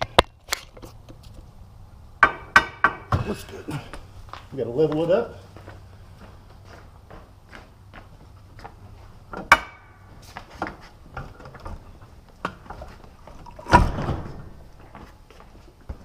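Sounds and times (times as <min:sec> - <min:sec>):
metal knocks and clunks: 0:02.2 - 0:03.4, 0:09.3 - 0:09.9, 0:10.6 - 0:14.6.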